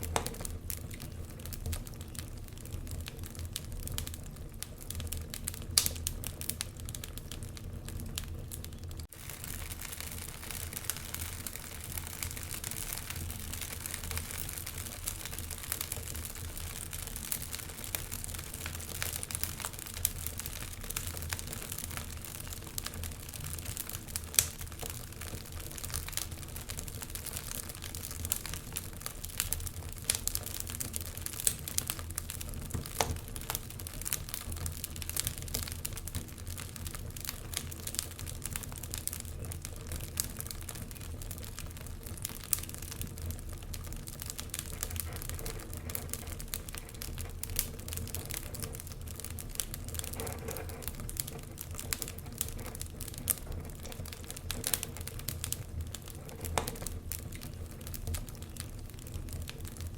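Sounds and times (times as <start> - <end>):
fire popping: 0.0 - 59.9
wood fire crackling: 0.0 - 59.9.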